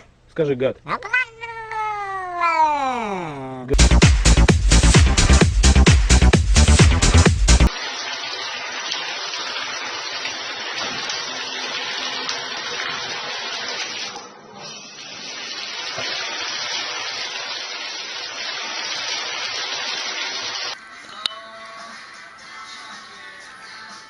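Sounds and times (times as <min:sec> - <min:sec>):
running water: 0:07.6 - 0:20.8.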